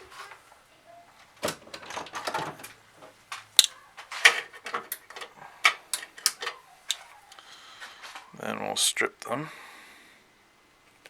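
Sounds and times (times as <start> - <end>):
wires and tool rustling: 0.0 - 8.4.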